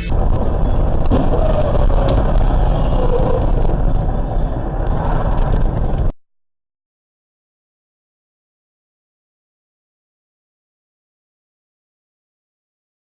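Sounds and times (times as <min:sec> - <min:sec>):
car engine and road rumble: 0:00.0 - 0:06.1.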